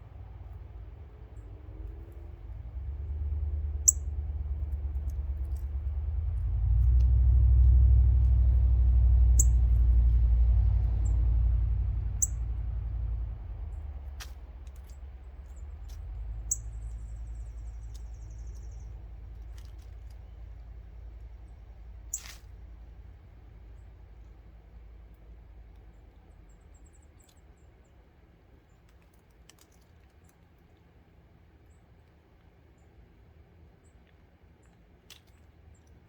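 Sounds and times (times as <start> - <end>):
small birds chipping: 0.0 - 6.5, 9.3 - 11.4, 12.0 - 30.6
low rumble: 0.0 - 26.8
faint bird trill: 3.8 - 4.1, 9.4 - 9.7, 12.2 - 12.4, 16.4 - 19.0, 22.1 - 22.4.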